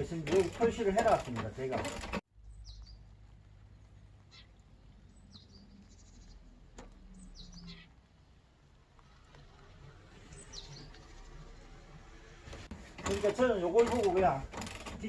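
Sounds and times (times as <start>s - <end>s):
faint birds chirping: 2.3s - 14.3s.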